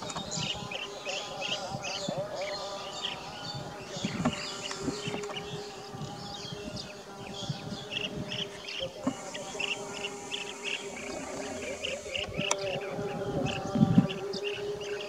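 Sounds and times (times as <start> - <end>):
small birds chirping: 0.0 - 15.0
high insect buzz: 1.8 - 15.0
steady low hum: 8.9 - 13.0.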